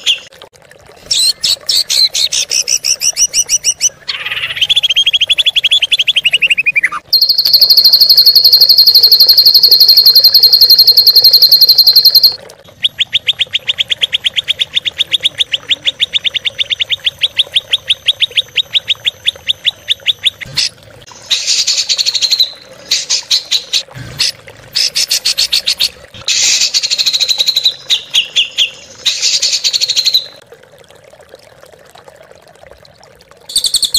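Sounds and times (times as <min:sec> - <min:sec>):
songbirds trilling: 0:02.7 - 0:20.5.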